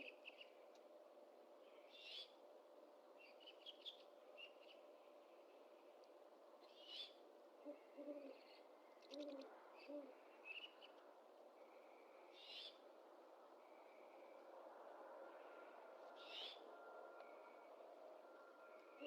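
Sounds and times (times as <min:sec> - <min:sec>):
owl hooting faintly: 0:06.8 - 0:10.3.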